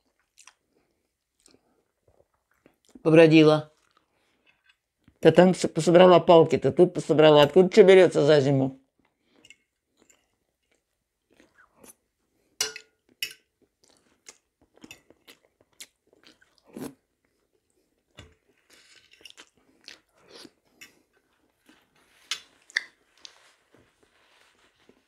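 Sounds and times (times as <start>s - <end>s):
person chewing food: 0.0s - 3.0s, 9.0s - 23.8s.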